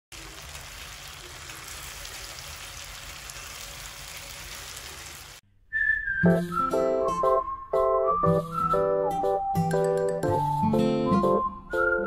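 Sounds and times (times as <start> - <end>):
chicken sizzling in a frying pan: 0.1 - 5.4.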